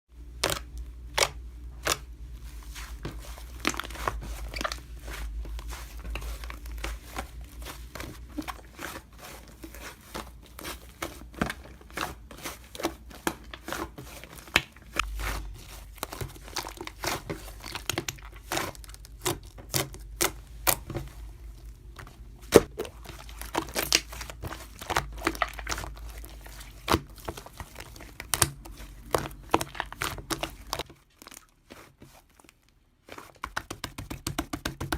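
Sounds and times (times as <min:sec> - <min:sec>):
crinkling and tearing: 0:00.4 - 0:34.2.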